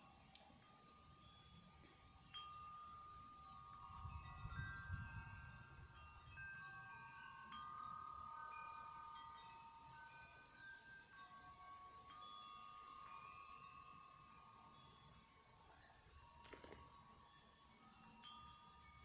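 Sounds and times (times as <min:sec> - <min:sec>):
wind chimes ringing: 0:00.0 - 0:19.0
wind rumbling on microphone: 0:03.8 - 0:06.5.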